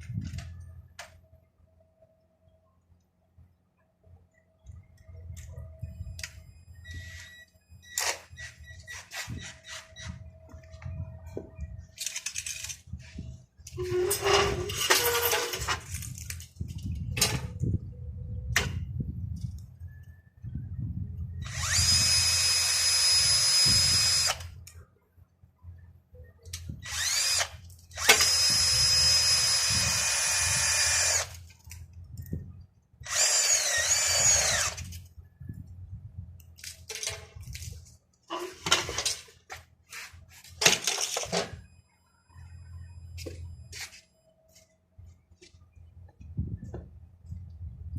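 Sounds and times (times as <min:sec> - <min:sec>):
power drill whining: 0:21.4 - 0:24.5, 0:26.8 - 0:31.4, 0:33.0 - 0:34.9.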